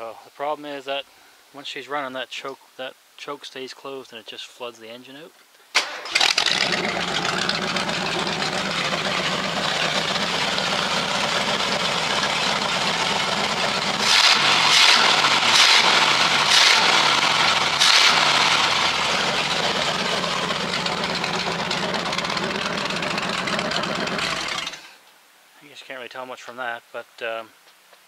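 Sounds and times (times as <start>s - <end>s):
car engine revving: 6.1s - 24.8s.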